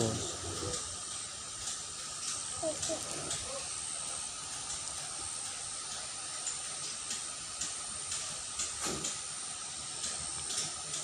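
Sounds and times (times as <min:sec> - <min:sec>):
water running in a ditch: 0:00.0 - 0:11.0.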